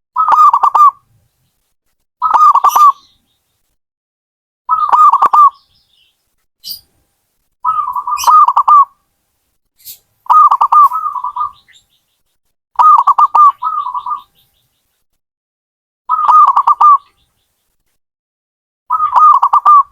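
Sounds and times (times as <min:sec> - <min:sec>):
dove cooing: 0:00.2 - 0:01.0, 0:02.2 - 0:03.0, 0:04.7 - 0:05.6, 0:07.6 - 0:08.9, 0:10.3 - 0:11.7, 0:12.8 - 0:14.3, 0:16.1 - 0:17.0, 0:18.9 - 0:19.9.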